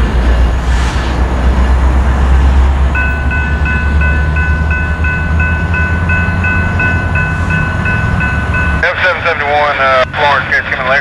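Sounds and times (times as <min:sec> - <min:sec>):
freight train rumbling past: 0:00.0 - 0:11.0
train bell ringing: 0:02.9 - 0:10.0.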